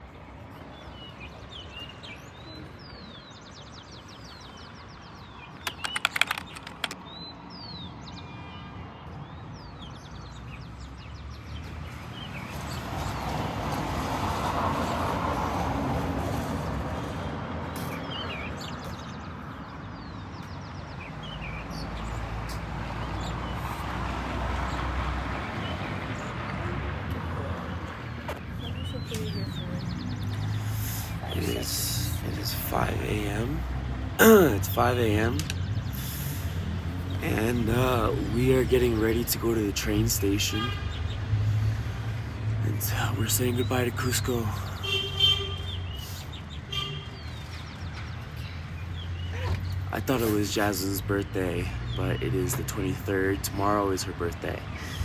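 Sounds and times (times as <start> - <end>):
small birds chirping: 0.0 - 15.0, 17.6 - 55.0
loud clicks: 5.6 - 7.0
vehicle passing: 21.1 - 44.8, 48.2 - 55.0.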